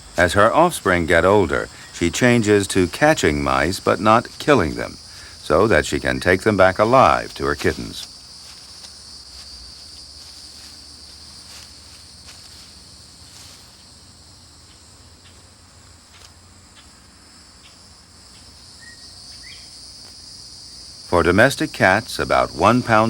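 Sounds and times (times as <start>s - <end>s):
crickets chirring: 0.0s - 23.0s
faint ticks: 7.2s - 13.9s, 14.6s - 17.0s.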